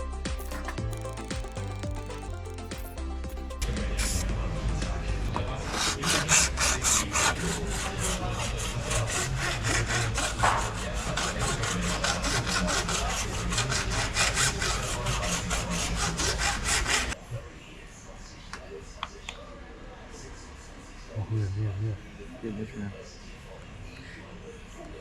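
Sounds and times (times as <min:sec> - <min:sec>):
hand tool scraping sheet metal: 0:00.3 - 0:04.2, 0:05.6 - 0:17.2.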